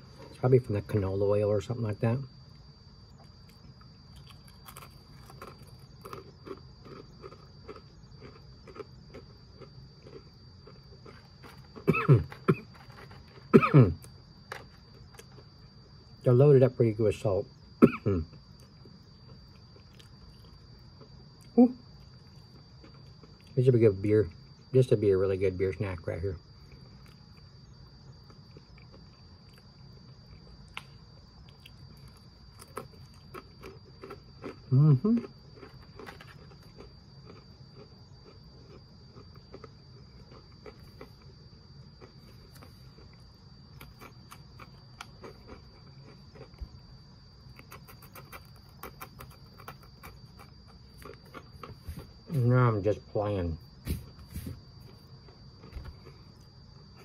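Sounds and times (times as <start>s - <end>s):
man chewing crunchy pretzels: 2.5s - 16.2s, 17.8s - 23.6s, 26.6s - 52.5s, 54.0s - 57.0s
pretzel sticks crunching: 4.2s - 9.3s
throat clearing: 11.8s - 12.8s, 13.5s - 14.1s, 17.8s - 18.4s.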